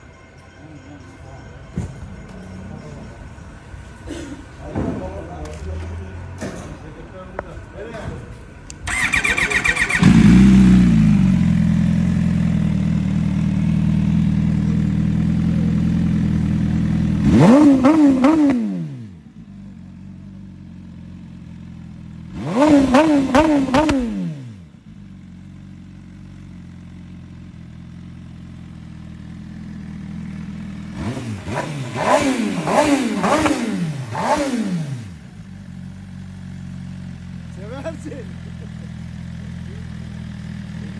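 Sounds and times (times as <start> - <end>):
motorcycle engine revving and idling: 1.8 - 40.9
starter motor cranking: 8.7 - 11.0.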